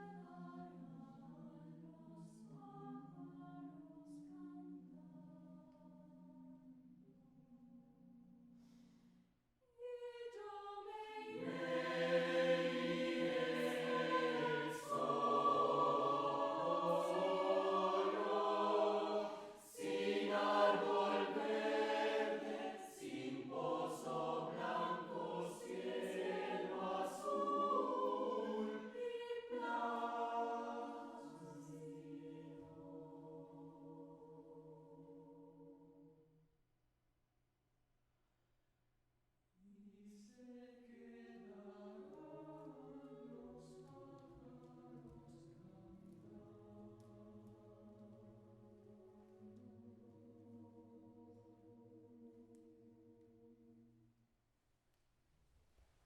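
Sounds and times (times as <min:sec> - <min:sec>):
vocal ensemble singing in harmony: 0:10.0 - 0:36.0.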